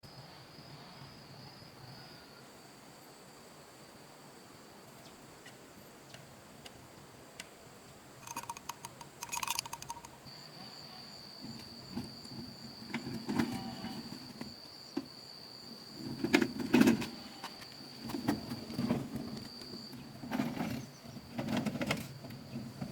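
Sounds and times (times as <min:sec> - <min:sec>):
clattering and knocking: 0:08.2 - 0:10.2
insect trilling: 0:08.2 - 0:14.3.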